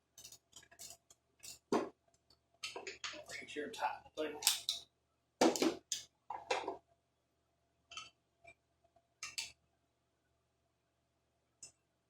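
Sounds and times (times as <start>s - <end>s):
hand tools and metal parts clinking: 0.2s - 1.7s.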